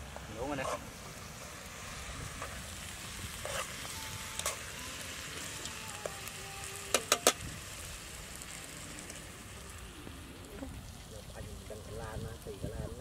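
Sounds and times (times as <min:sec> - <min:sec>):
food sizzling in metal pot: 0:00.0 - 0:13.0.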